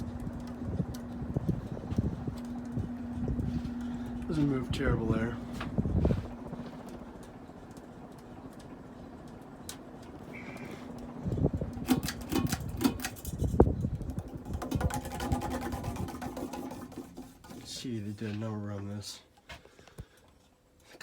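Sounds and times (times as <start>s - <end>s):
ceiling fan motor humming: 0.0s - 21.0s
knocks clicks and rattles: 11.7s - 17.8s.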